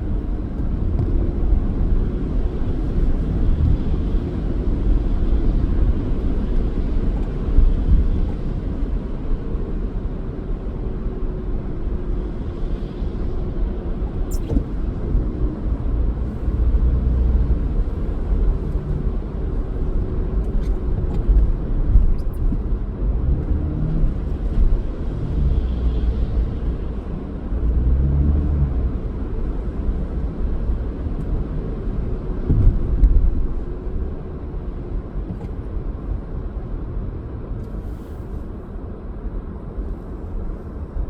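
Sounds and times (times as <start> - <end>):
car road and engine rumble: 0.0 - 41.0.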